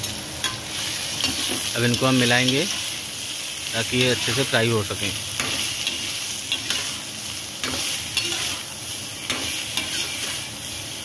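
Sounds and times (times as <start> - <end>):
vegetables sizzling in hot oil: 0.0 - 11.0
metal spatula scraping: 5.4 - 10.9.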